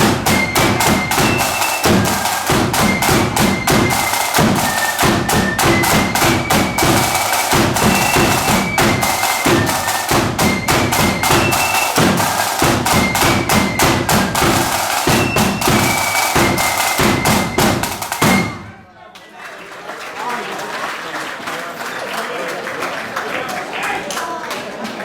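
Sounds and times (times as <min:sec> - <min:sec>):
bass drum beats: 0:00.0 - 0:18.6
snare drum strikes: 0:00.0 - 0:18.8
high flute melody: 0:00.0 - 0:18.9.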